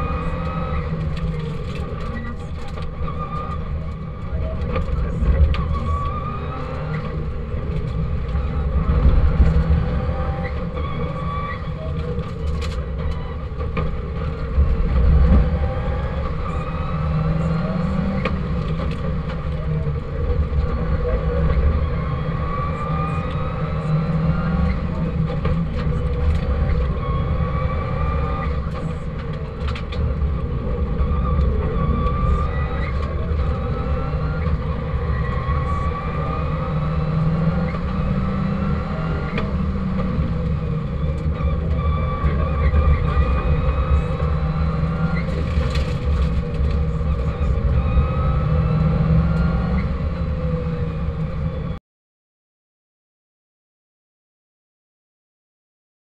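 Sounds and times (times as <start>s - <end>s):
car engine accelerating hard: 0.0s - 51.8s
road and tyre noise: 0.0s - 51.8s.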